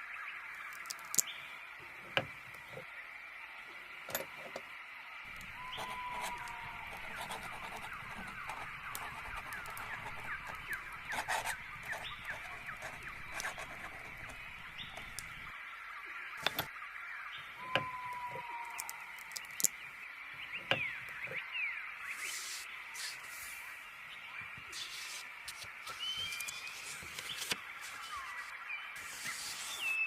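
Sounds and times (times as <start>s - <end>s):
birds chirping: 5.3s - 30.0s
bird whistled note: 5.4s - 12.4s, 17.6s - 19.0s.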